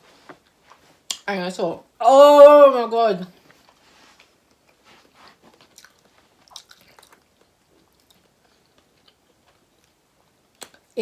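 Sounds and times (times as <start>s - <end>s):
faint chewing of seafood: 3.4s - 11.0s
small crunches and clicks: 5.4s - 10.0s.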